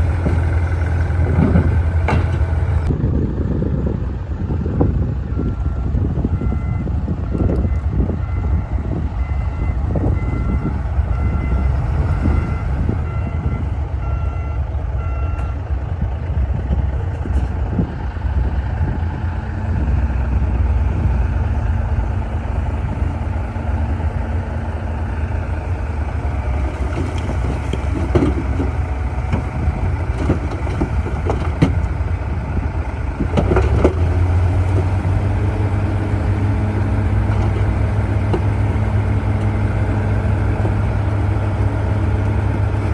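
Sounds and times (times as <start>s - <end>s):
bulldozer diesel engine: 0.0s - 42.9s
metallic knocks and clanks: 1.3s - 2.9s, 26.7s - 31.9s.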